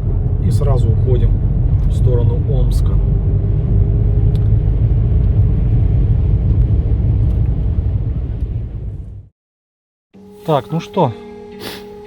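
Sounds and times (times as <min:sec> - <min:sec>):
car cabin road and engine rumble: 0:00.0 - 0:09.3.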